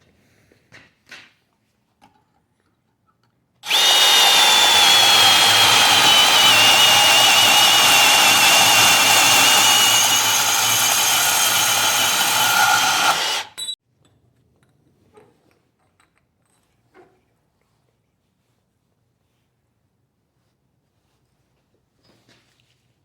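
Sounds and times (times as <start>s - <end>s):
angle grinder grinding steel: 3.6s - 13.8s.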